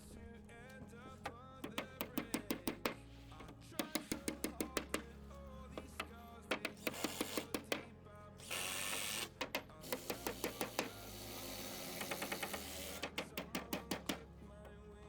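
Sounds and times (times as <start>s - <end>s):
sharp knocks and clicks: 0.8s - 5.1s, 5.7s - 7.9s, 8.9s - 11.0s, 11.9s - 14.4s.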